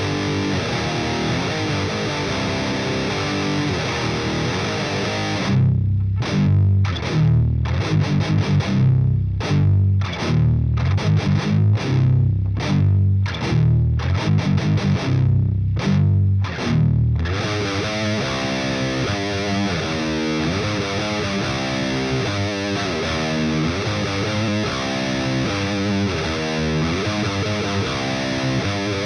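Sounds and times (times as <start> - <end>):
distorted electric guitar: 0.0 - 29.0.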